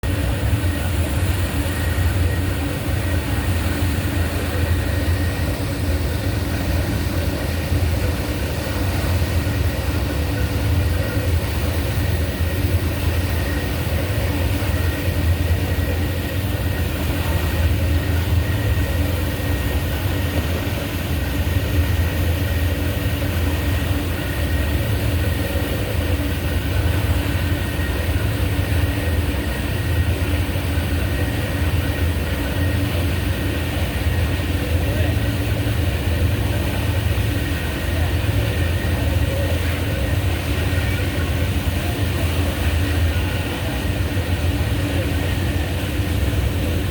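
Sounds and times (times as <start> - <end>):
steady whining tones: 0.0 - 46.9
vehicle machinery low hum: 0.0 - 46.9.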